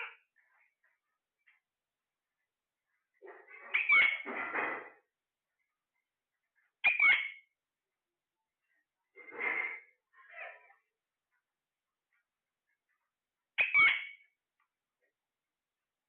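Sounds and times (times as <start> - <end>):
parrot calls: 3.3 - 4.3, 6.8 - 7.5, 13.6 - 14.3.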